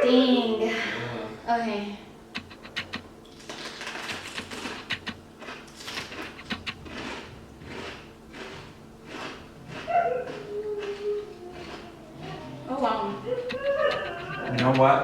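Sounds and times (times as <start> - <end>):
chewing crunchy food: 2.4 - 12.5, 13.2 - 15.0.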